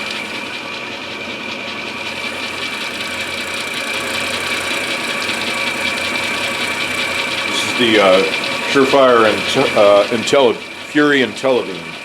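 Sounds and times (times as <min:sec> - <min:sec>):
milling machine cutting wood: 0:00.0 - 0:12.0.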